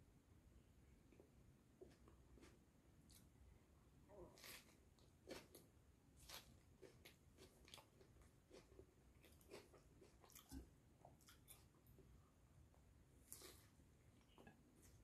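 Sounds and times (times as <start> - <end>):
chewing and biting food: 4.4 - 12.0.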